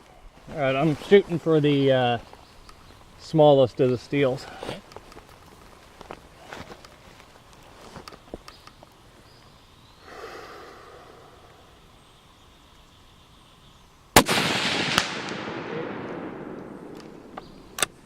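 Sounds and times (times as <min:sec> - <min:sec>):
rifle shot with echo: 0:14.2 - 0:17.9.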